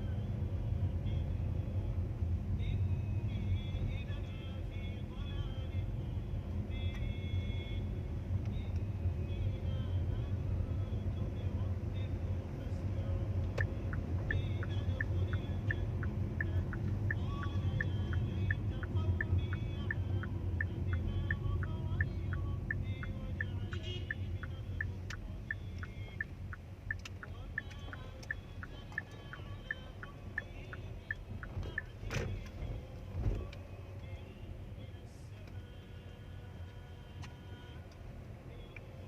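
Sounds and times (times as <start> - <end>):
car rumble: 0.0 - 39.0
even ticking clicks: 13.4 - 32.4.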